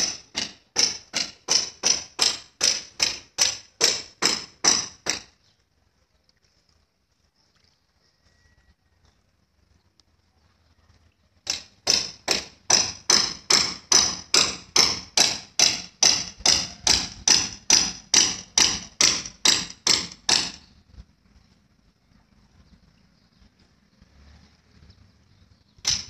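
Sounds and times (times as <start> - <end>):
sharp knocks: 0.0 - 5.3, 11.5 - 20.6.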